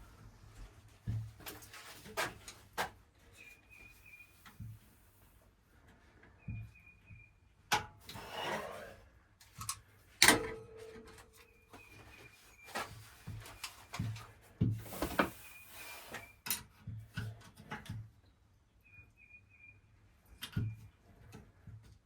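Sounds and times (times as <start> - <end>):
scraping: 8.1 - 9.1
tools knocking and clattering: 9.6 - 11.4.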